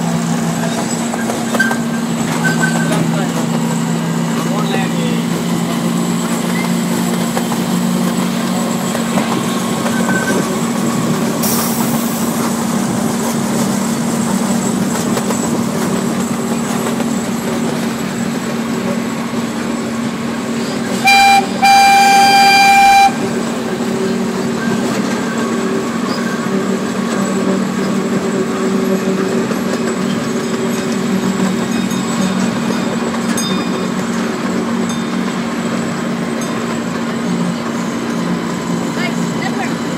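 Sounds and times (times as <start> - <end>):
miniature train engine running: 0.0 - 39.9
train horn: 21.0 - 23.3.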